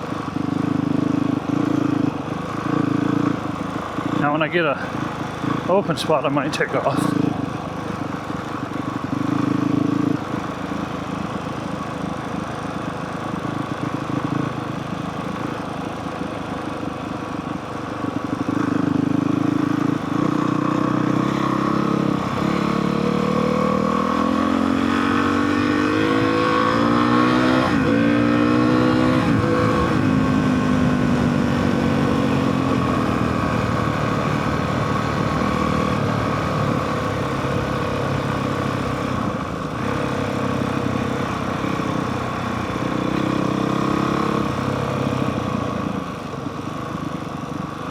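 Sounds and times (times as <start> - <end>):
dirt bike engine revving: 18.5 - 45.3.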